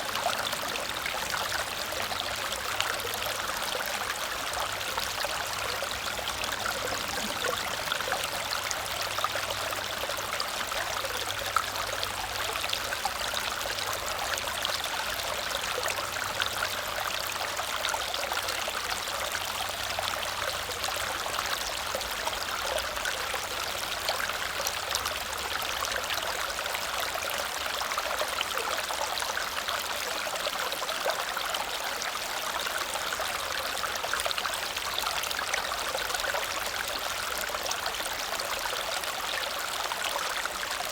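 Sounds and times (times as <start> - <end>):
small waterfall splashing: 0.0 - 40.9.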